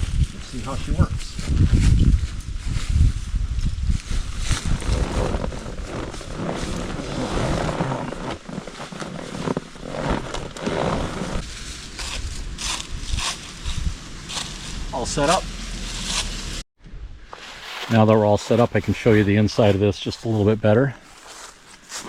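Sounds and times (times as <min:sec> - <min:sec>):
nylon fabric rustling: 0:04.2 - 0:13.5.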